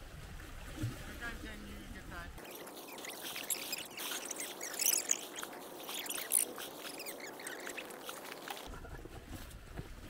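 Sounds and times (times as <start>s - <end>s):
water splashing and sloshing: 0.0s - 8.7s
small crackles and ticks: 2.4s - 8.7s.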